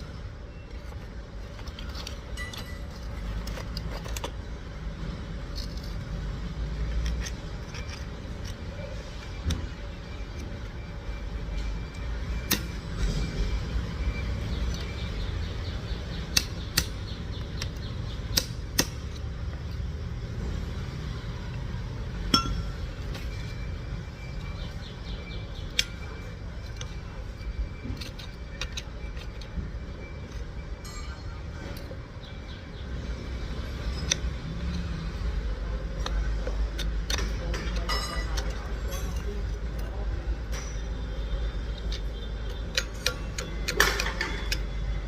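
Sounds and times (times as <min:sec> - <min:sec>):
engine low rumble: 0:00.0 - 0:45.0
sharp metallic clinks: 0:02.2 - 0:03.4, 0:21.9 - 0:32.6, 0:33.6 - 0:36.3, 0:37.1 - 0:44.9.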